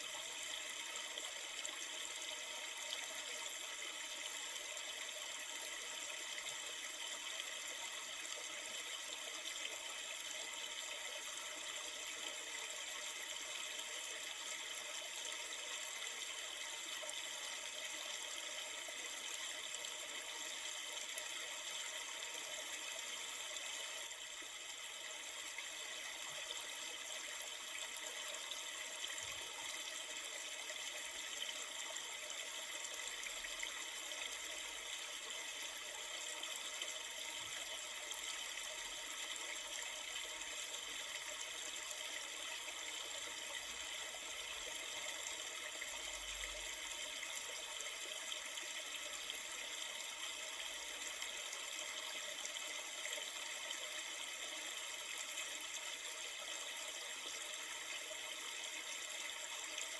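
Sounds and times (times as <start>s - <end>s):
river water flowing: 36.8s - 52.6s.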